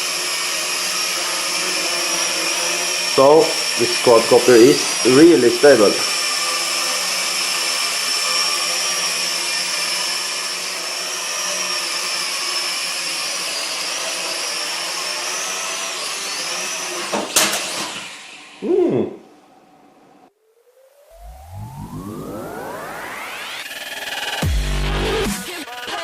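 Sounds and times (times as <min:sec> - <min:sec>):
toy drone propellers whining: 0:00.0 - 0:19.9, 0:20.7 - 0:24.5.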